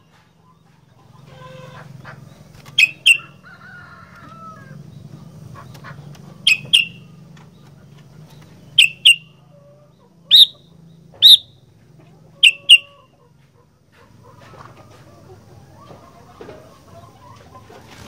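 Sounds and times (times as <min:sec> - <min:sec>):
bird giving sharp calls: 0:02.7 - 0:03.4, 0:05.8 - 0:07.1, 0:08.7 - 0:09.3, 0:10.3 - 0:10.6, 0:11.2 - 0:11.6, 0:12.4 - 0:13.0.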